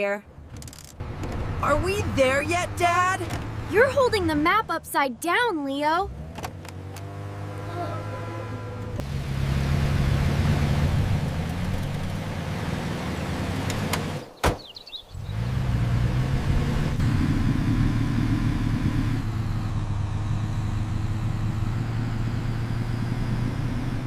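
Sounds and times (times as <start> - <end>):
van engine running: 15.2 - 24.0.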